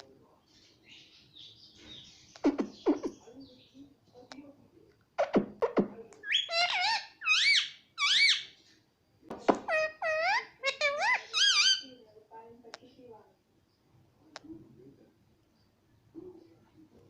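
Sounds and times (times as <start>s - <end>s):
parrot vocalising: 5.2s - 8.6s, 9.5s - 11.9s.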